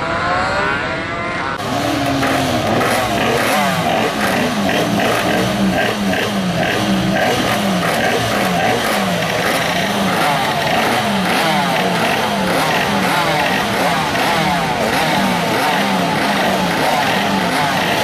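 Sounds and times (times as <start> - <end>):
minibike engines revving: 0.0 - 18.0.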